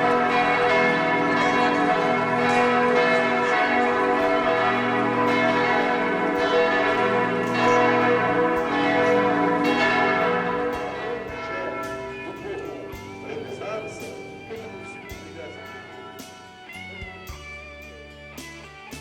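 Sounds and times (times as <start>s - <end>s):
church bells ringing: 0.0s - 17.0s.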